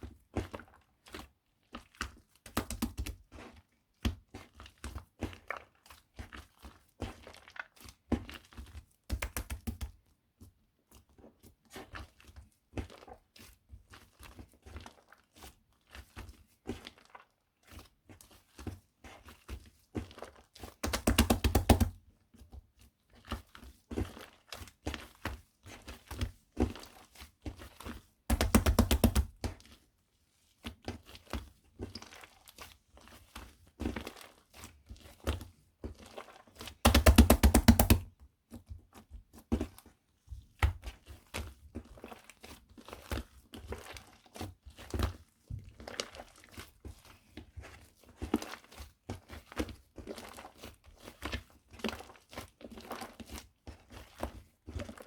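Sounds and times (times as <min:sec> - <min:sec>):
shaving foam crackling and popping: 0:20.8 - 0:21.9, 0:28.3 - 0:29.3, 0:36.9 - 0:38.0.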